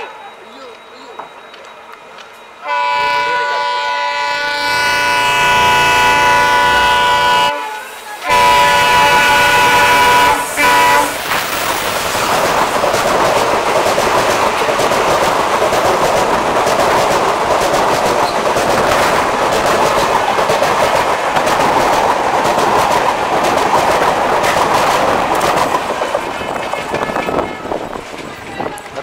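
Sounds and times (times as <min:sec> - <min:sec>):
locomotive horn blasts: 0:02.6 - 0:11.3
train wheels rushing and clattering: 0:04.6 - 0:29.0.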